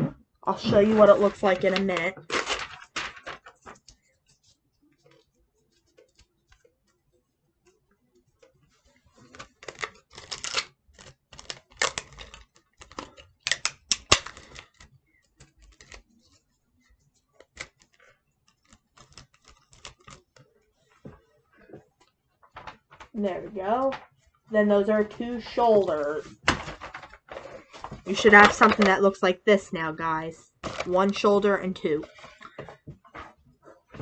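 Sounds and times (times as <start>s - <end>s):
tape crinkling: 0.6s - 4.1s, 9.2s - 16.4s, 17.3s - 24.1s.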